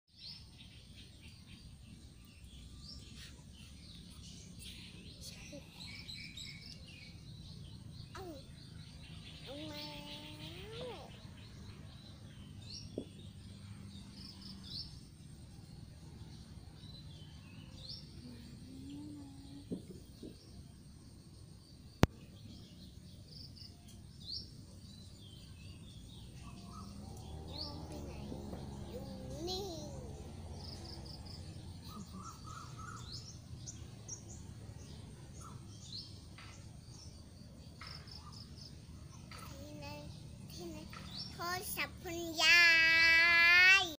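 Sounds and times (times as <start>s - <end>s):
small birds chirping: 0.1s - 43.9s
low outdoor rumble: 25.0s - 43.9s.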